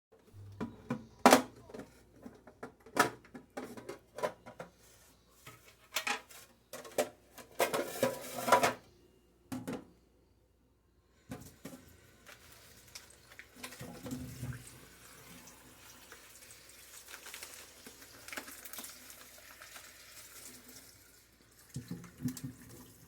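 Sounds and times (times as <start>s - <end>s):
plastic containers clattering: 0.4s - 4.8s, 5.5s - 8.8s.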